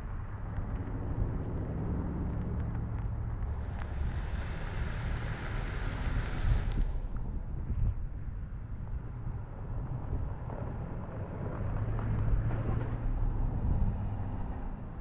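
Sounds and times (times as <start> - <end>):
vehicle engine rumbling: 0.1 - 7.9
rushing hiss: 3.6 - 6.9.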